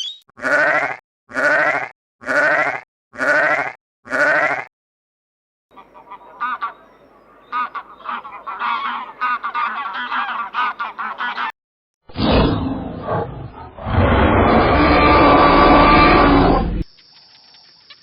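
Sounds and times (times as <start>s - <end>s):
flock of birds calling: 5.7s - 11.5s
rough animal call: 12.1s - 16.8s.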